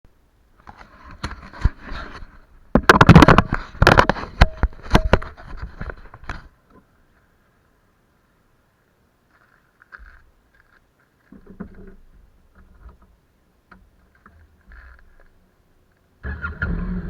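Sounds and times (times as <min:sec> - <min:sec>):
close-up knocks clicks and scraping: 0:00.6 - 0:06.9, 0:09.4 - 0:15.4.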